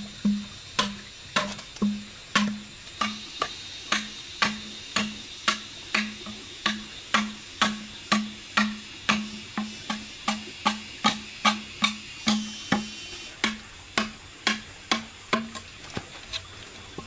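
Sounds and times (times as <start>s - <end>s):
sharp knocks with low ringing: 0.0s - 15.6s.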